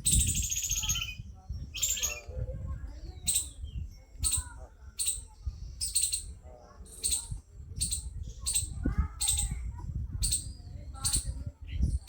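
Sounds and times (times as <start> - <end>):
bird chirping: 0.0 - 9.6.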